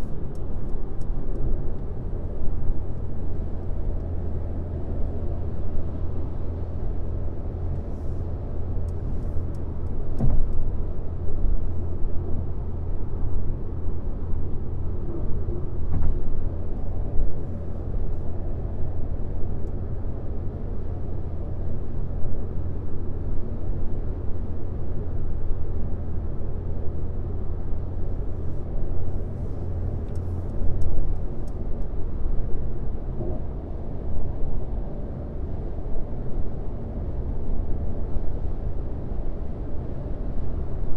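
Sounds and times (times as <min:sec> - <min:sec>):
car road rumble from inside: 0:00.0 - 0:40.9.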